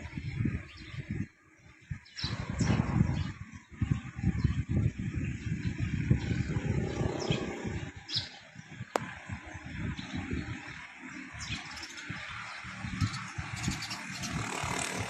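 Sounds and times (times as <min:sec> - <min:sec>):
uneven low rumble: 0:02.3 - 0:08.2.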